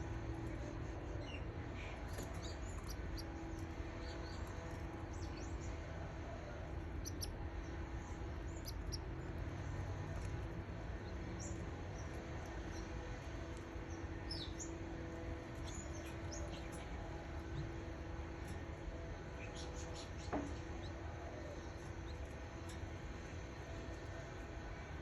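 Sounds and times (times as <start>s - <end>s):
low hum: 0.0s - 25.0s
chicks cheeping: 0.4s - 5.9s, 6.6s - 18.6s.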